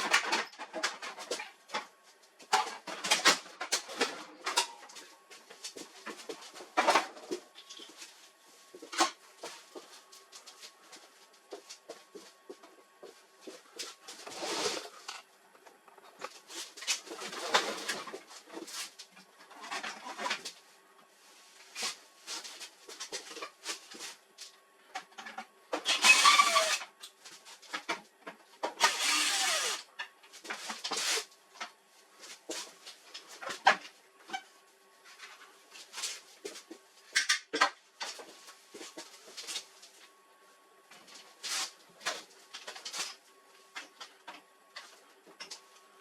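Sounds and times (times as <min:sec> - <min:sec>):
scraping or sliding noises: 0:13.5 - 0:15.3.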